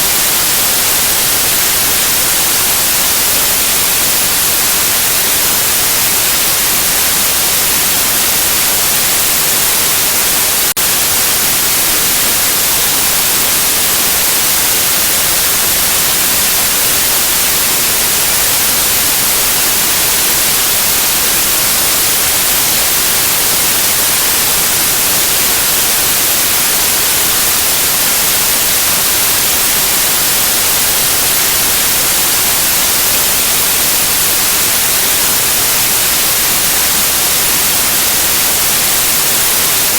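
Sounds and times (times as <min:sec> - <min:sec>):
loud white noise hiss: 0:00.0 - 0:39.9.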